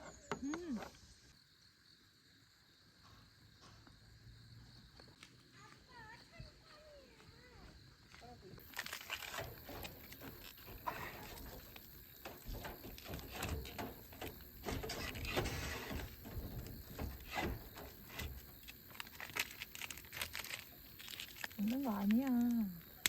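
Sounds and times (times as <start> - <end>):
small objects clicking and tapping: 8.6 - 23.0.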